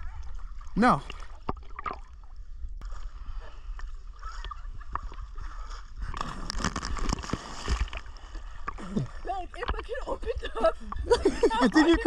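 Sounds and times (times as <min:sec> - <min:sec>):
water sloshing and splashing: 0:00.0 - 0:11.3.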